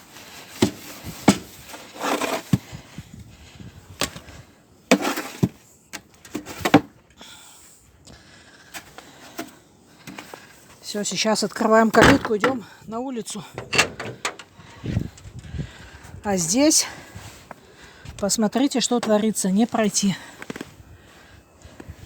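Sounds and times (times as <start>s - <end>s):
snow shovel scraping snow: 0.1s - 2.8s, 4.9s - 5.5s.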